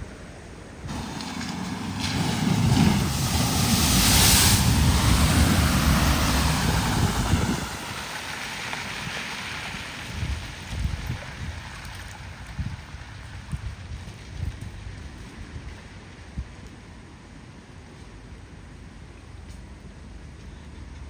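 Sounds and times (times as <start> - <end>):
vehicle engine and tyre rumble: 0.0 - 21.0
water spray rushing: 0.9 - 12.4.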